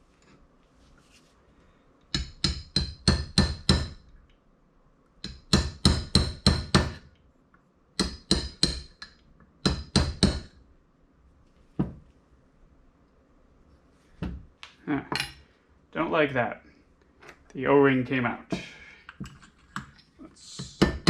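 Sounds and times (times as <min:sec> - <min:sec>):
small hammer tapping metal: 0:02.1 - 0:04.0, 0:05.2 - 0:07.0, 0:08.0 - 0:10.5.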